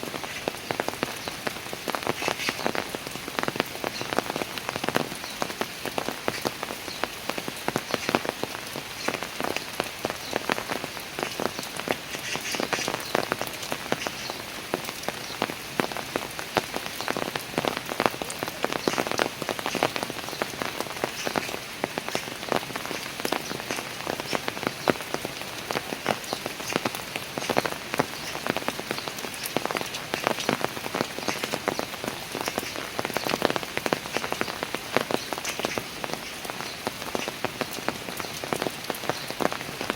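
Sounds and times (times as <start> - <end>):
rain on hard surfaces: 0.0 - 39.9.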